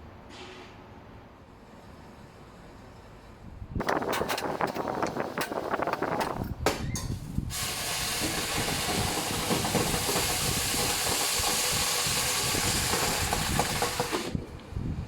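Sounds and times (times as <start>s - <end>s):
steady loud hiss: 7.3s - 15.0s.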